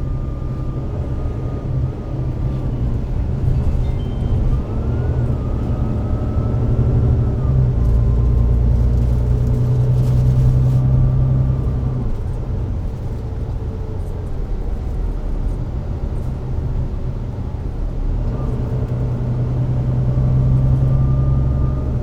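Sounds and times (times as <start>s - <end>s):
bus diesel engine drone: 0.0s - 22.0s.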